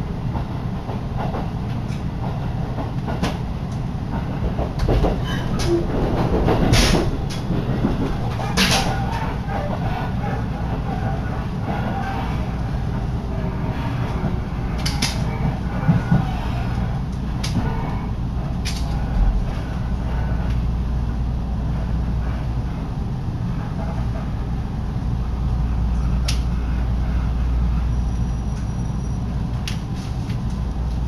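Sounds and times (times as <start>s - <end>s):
train low rumble: 0.0s - 31.0s
wind from open window: 0.0s - 31.0s.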